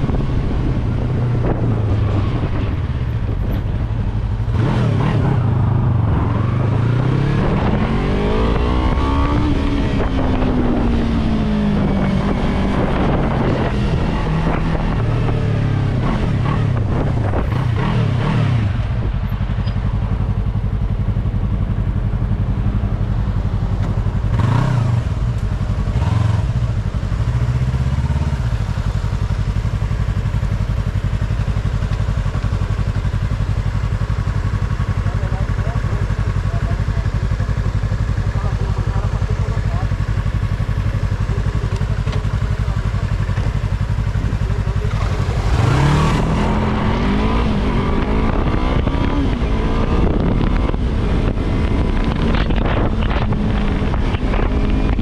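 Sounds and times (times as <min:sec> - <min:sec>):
wind over microphone: 0:00.0 - 0:20.0, 0:43.5 - 0:55.0
motorcycle engine revving: 0:00.0 - 0:55.0.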